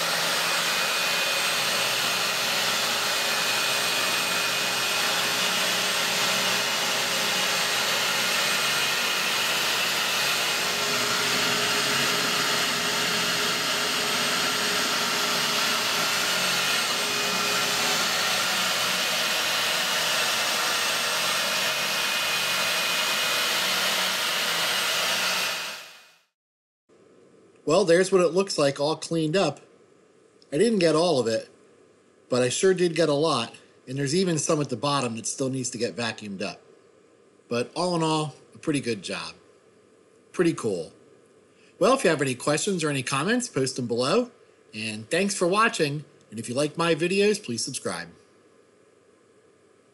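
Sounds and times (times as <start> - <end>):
vacuum cleaner running: 0.0 - 26.1.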